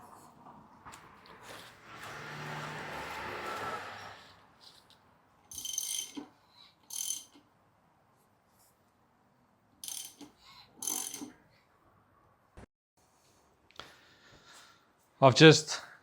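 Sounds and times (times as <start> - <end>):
ratchet wrench clicking: 5.5 - 7.4, 9.8 - 11.4.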